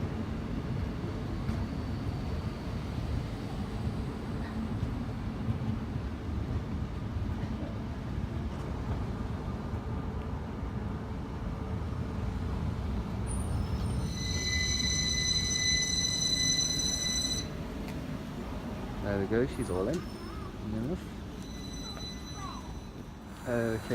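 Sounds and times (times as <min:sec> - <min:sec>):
electric train rumbling: 0:00.0 - 0:23.9
high-pitched brake squeal: 0:13.3 - 0:17.5, 0:19.5 - 0:20.7, 0:21.3 - 0:23.2.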